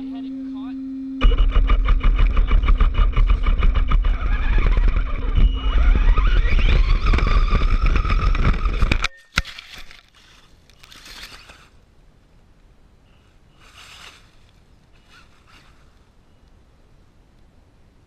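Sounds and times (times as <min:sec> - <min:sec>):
electric motor whine: 0:00.0 - 0:09.0
rc car rumbling and rattling: 0:01.2 - 0:09.1, 0:09.7 - 0:11.8, 0:13.5 - 0:16.0.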